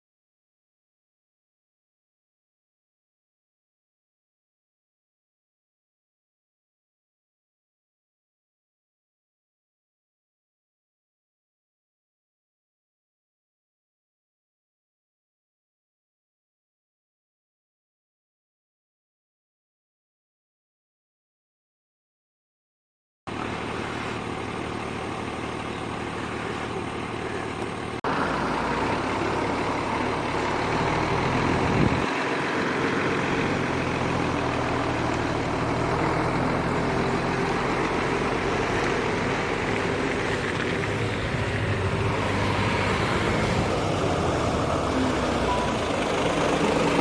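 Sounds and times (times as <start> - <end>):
road running noise: 23.3 - 47.0
vehicle engine running: 23.3 - 47.0.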